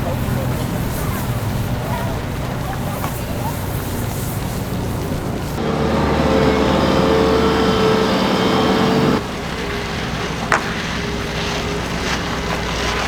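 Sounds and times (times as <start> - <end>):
vehicle engine running: 0.0 - 9.3
city street noise: 0.0 - 13.0.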